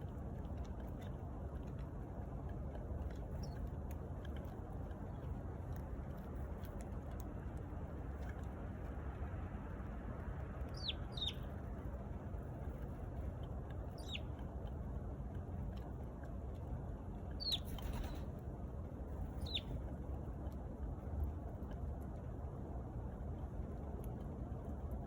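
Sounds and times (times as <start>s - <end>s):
steady low rumble: 0.0s - 25.0s
sparrow chirping: 10.7s - 11.5s, 13.9s - 14.3s, 17.4s - 18.2s, 19.4s - 19.7s.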